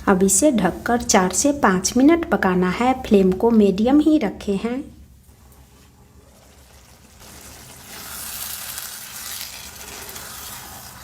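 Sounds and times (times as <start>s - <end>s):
food sizzling in a pan: 5.3s - 11.0s.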